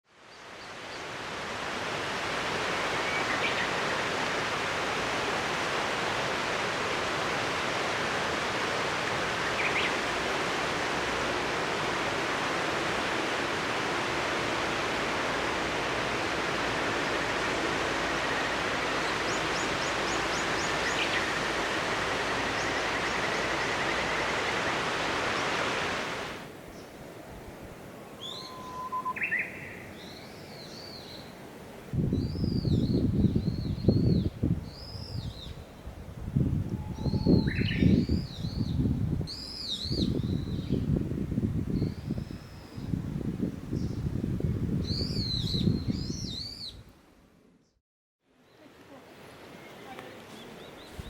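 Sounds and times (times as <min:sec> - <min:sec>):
river flowing: 0:00.1 - 0:32.0.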